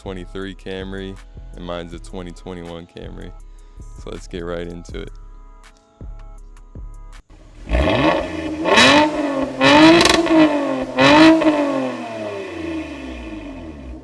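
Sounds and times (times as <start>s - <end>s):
car engine revving: 7.4s - 14.0s.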